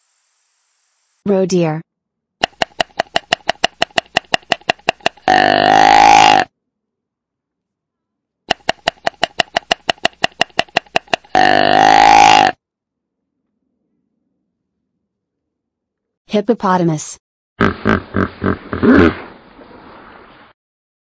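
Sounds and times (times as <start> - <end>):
sharp clicks: 2.4 - 5.3, 8.5 - 11.4
deer call: 5.3 - 6.5, 11.4 - 12.6.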